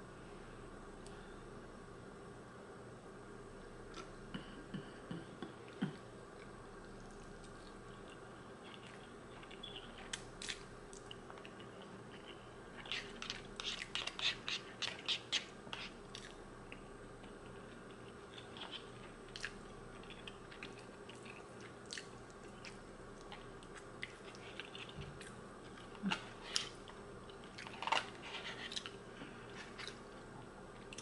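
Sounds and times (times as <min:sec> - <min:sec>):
person slurping and chewing pasta: 0:07.4 - 0:16.4, 0:17.4 - 0:30.0.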